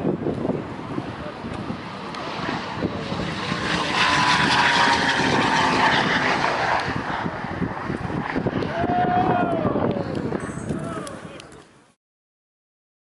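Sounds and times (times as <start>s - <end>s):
car engine passing at speed: 0.6s - 8.6s.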